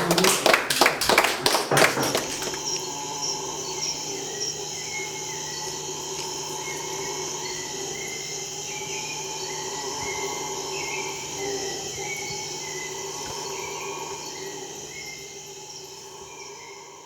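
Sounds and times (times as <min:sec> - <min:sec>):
insect chorus of held tones: 0:02.6 - 0:17.0.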